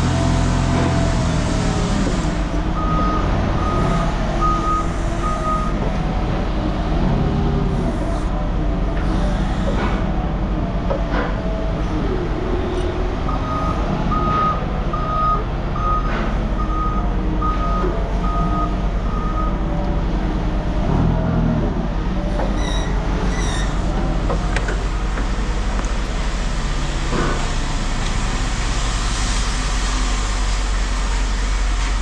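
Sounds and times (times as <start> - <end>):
heavy vehicle engine running: 0.0 - 32.0
backup alarm beeping: 2.8 - 5.8, 13.3 - 19.6.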